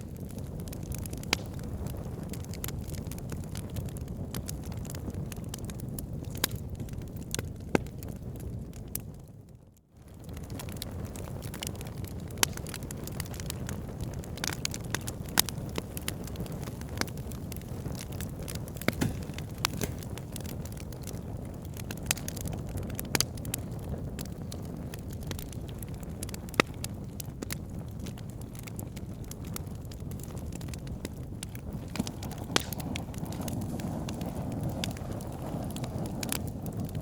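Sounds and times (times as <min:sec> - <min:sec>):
fire rumbling: 0:00.0 - 0:37.0
wood crackling and popping: 0:00.0 - 0:37.0.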